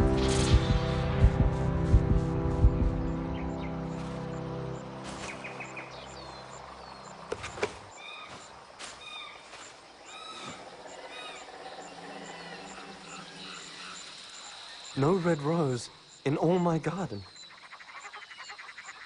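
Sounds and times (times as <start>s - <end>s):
music: 0.0s - 6.6s
insect chirring: 3.0s - 19.0s.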